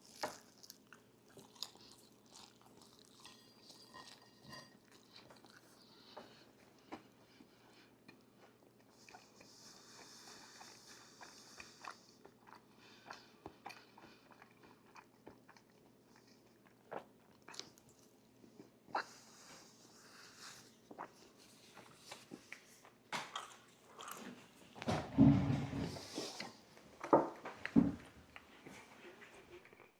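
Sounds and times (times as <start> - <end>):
crunchy chewing: 0.0 - 6.1, 8.0 - 24.4.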